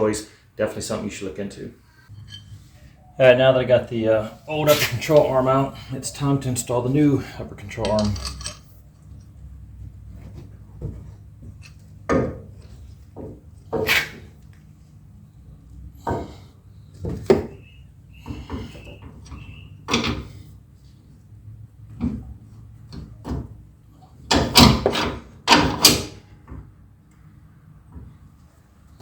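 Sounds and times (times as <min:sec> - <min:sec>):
metal clanks and knocks: 0:02.1 - 0:02.8, 0:07.4 - 0:14.3, 0:24.3 - 0:26.7.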